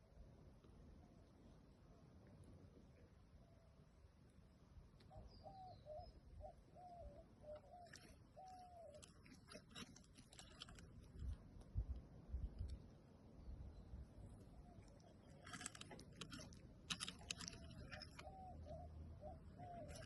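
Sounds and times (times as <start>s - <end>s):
dove cooing: 5.1s - 9.0s, 17.3s - 20.0s
clicks and rustles: 7.8s - 11.7s, 14.8s - 18.7s, 19.6s - 20.0s.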